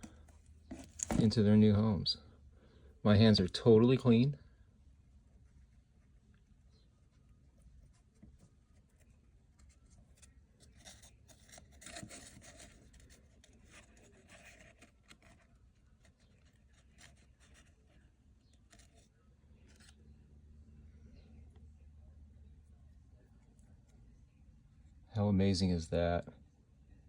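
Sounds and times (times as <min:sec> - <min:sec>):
hands handling things: 0:00.0 - 0:01.4, 0:08.0 - 0:20.1.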